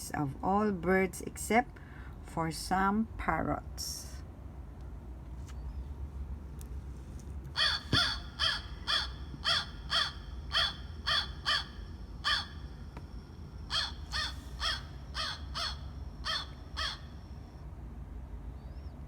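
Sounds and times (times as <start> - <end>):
crow cawing: 7.6 - 12.8, 13.7 - 17.3.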